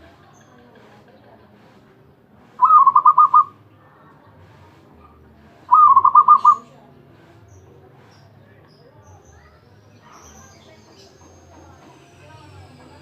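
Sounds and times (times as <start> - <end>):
dove cooing: 2.6 - 3.6, 5.7 - 6.7.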